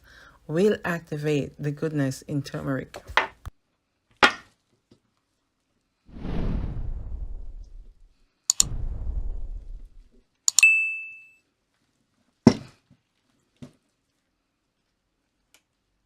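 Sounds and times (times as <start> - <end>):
ringing clink: 10.5 - 11.4.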